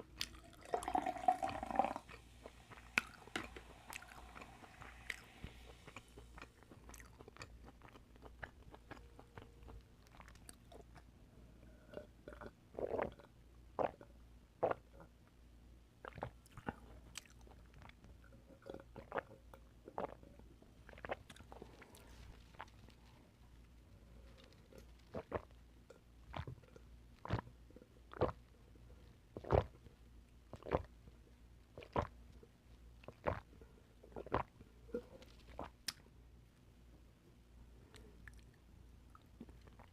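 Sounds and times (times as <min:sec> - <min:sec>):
oysters being chewed: 0:02.1 - 0:11.1
mouth clicks and smacks: 0:35.5 - 0:36.0.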